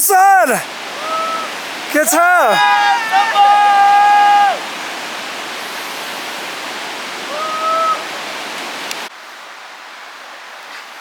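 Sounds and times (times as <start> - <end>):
short pitched vocal call: 0.0 - 0.6
stream rushing: 0.0 - 10.2.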